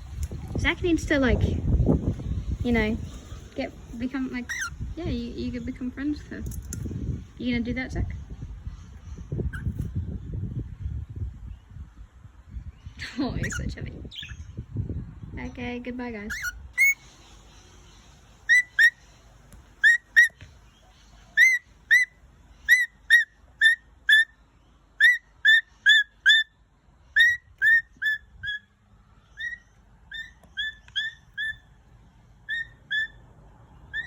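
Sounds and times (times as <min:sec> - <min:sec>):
parrot whistled chirps: 0:16.3 - 0:17.0, 0:18.5 - 0:19.0, 0:19.8 - 0:20.4, 0:21.4 - 0:24.3, 0:25.0 - 0:26.5, 0:27.2 - 0:28.7, 0:29.4 - 0:31.7, 0:32.5 - 0:33.2.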